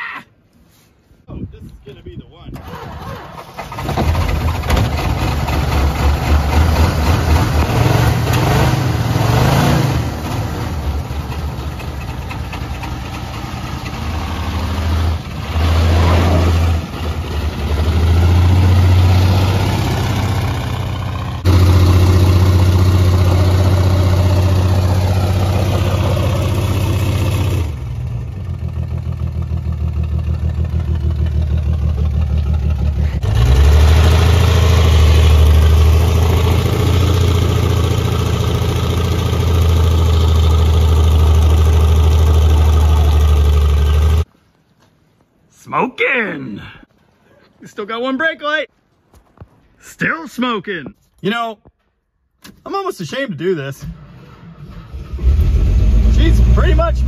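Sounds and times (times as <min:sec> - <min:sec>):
car engine revving hard: 0:05.1 - 0:11.0, 0:13.9 - 0:27.8, 0:32.4 - 0:44.2, 0:54.6 - 0:57.0
tyres spinning on wet ground: 0:21.4 - 0:27.8.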